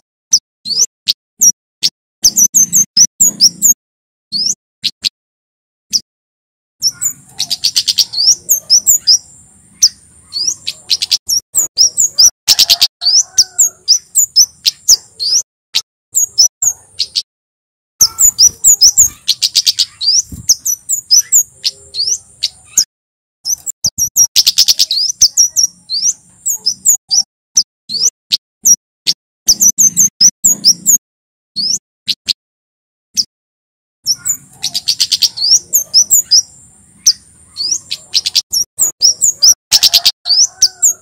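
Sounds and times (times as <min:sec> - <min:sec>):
bird singing sharp high notes: 0:02.2 - 0:05.1, 0:06.8 - 0:15.4, 0:18.0 - 0:28.1, 0:34.1 - 0:40.8
thin high bird trill: 0:06.8 - 0:15.4, 0:18.0 - 0:22.9, 0:23.5 - 0:27.3, 0:34.1 - 0:41.0.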